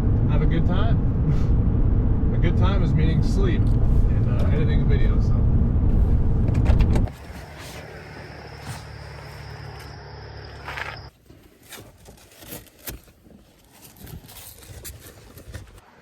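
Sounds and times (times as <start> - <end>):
pickup truck driving hum: 0.0 - 11.1
faint clicks and rustles: 6.5 - 16.0.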